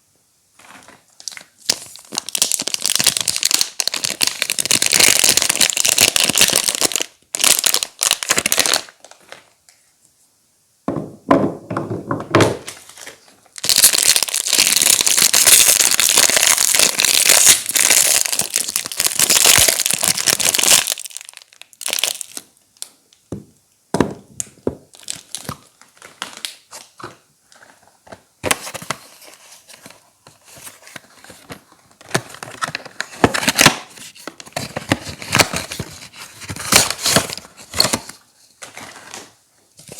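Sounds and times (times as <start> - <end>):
wrapper crinkling and tearing: 0.6 - 9.6, 12.6 - 22.9, 24.9 - 26.9, 28.4 - 39.9.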